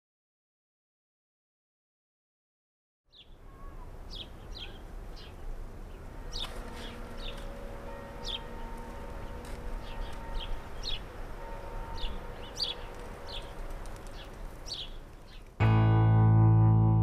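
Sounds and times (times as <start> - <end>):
small birds chirping: 3.1 - 7.4, 12.0 - 15.6.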